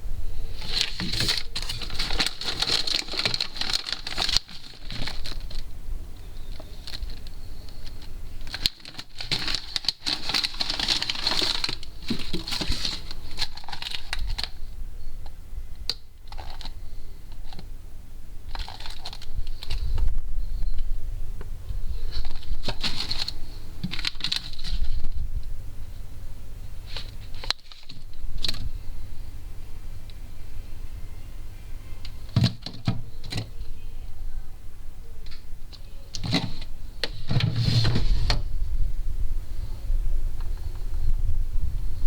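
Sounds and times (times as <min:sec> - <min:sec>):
plastic packaging rustling: 0:00.4 - 0:14.7, 0:16.2 - 0:17.6, 0:18.5 - 0:20.1, 0:21.8 - 0:25.3, 0:26.7 - 0:29.2, 0:31.9 - 0:33.8, 0:35.2 - 0:38.8.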